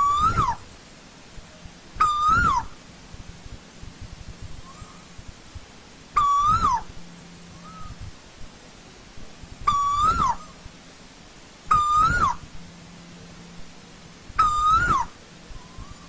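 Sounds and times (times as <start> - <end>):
bird calling loudly: 0.0 - 0.7, 2.0 - 2.8, 4.6 - 5.2, 6.2 - 7.0, 7.6 - 8.0, 9.6 - 10.6, 11.7 - 12.5, 14.4 - 16.0.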